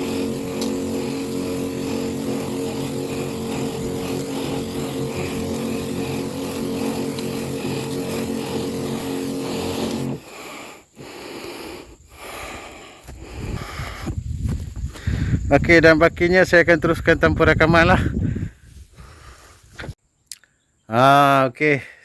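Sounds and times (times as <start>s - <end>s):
small sprayer engine running: 0.0s - 14.1s.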